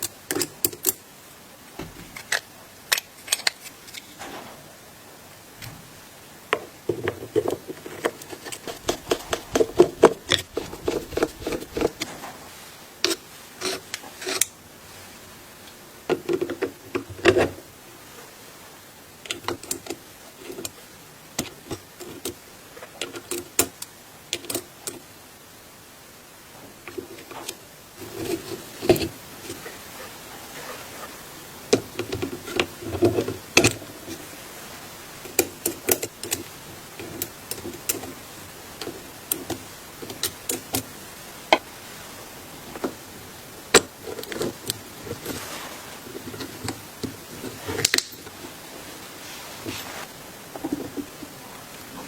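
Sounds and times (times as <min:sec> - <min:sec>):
small parts clicking and knocking: 0:00.0 - 0:01.0, 0:02.0 - 0:04.2, 0:19.2 - 0:20.8, 0:21.4 - 0:25.1, 0:35.2 - 0:38.2, 0:38.8 - 0:40.9, 0:46.2 - 0:48.4
rubbing and scraping: 0:06.9 - 0:15.2, 0:26.6 - 0:31.2, 0:43.8 - 0:51.4.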